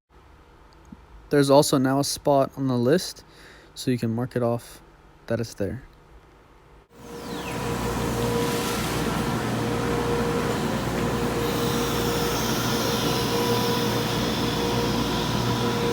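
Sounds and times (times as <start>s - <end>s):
shop machinery humming and whining: 6.9s - 15.9s.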